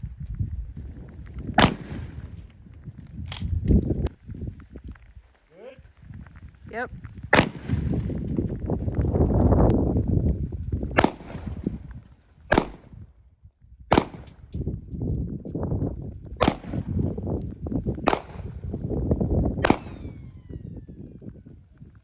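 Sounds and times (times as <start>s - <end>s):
shotgun shots with echo: 1.6s - 2.3s, 7.3s - 7.9s, 11.0s - 11.6s, 12.5s - 12.9s, 13.9s - 14.4s, 16.4s - 17.0s, 18.0s - 18.6s, 19.6s - 20.4s.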